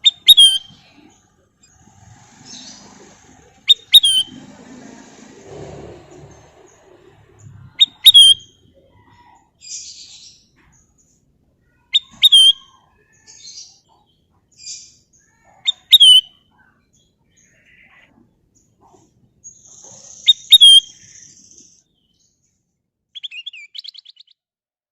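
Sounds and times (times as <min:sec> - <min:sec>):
bird whistling phrases: 0:00.0 - 0:00.8, 0:03.7 - 0:04.3, 0:07.8 - 0:08.6, 0:11.9 - 0:12.9, 0:15.3 - 0:16.4, 0:20.3 - 0:21.1.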